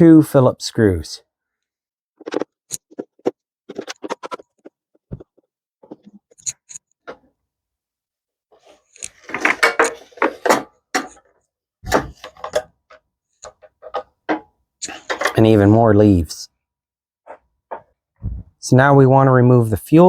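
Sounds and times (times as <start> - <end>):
screwdriver clicks and scrapes: 5.9 - 7.0, 8.9 - 10.0
low thuds: 18.2 - 18.5.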